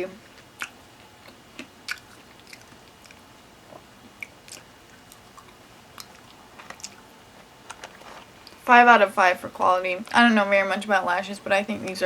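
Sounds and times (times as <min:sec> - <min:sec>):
chewing and mouth sounds: 0:00.3 - 0:07.1.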